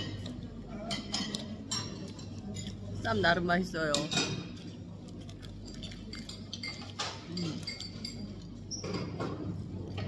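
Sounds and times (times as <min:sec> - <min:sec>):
dishes and cutlery clinking: 0:00.0 - 0:10.0
crunchy chewing: 0:04.9 - 0:06.4.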